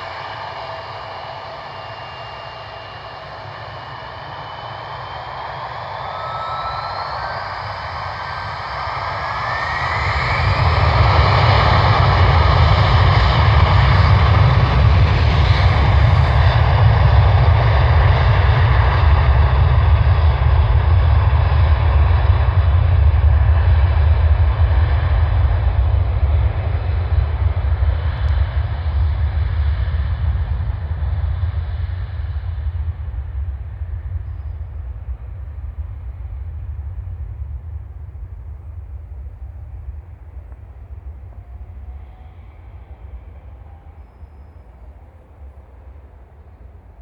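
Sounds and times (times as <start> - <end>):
jet engines roaring at takeoff: 0.0 - 47.0.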